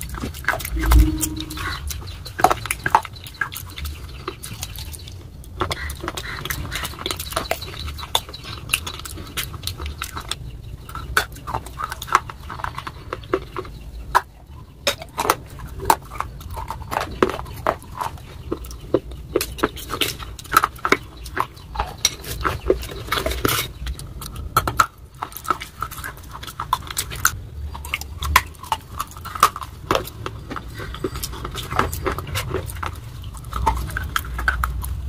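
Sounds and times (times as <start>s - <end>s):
crunchy chewing with mouth clicks: 0.0s - 35.0s.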